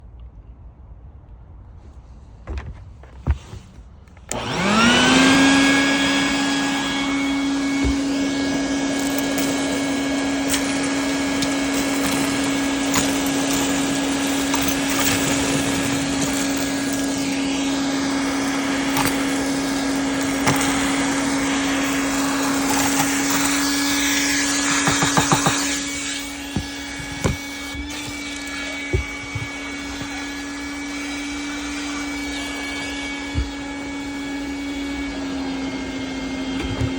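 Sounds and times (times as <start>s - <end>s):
vacuum cleaner motor whine: 4.2s - 36.9s
pieces rattling in vacuum: 4.4s - 30.9s.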